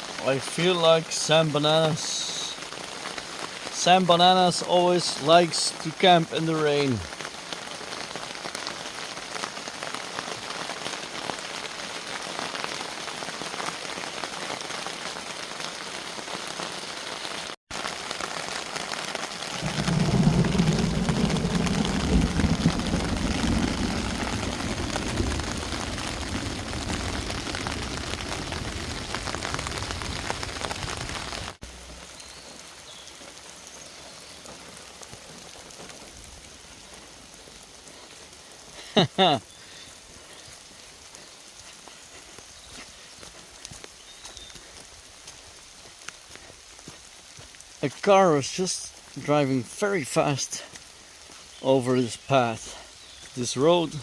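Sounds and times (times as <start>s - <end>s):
heavy rain pattering: 0.0s - 54.0s
deep rumble of thunder: 19.6s - 30.8s.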